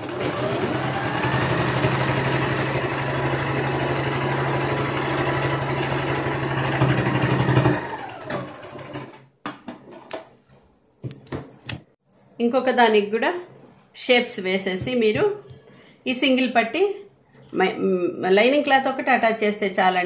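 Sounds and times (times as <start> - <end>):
sewing machine stitching: 0.0 - 9.2.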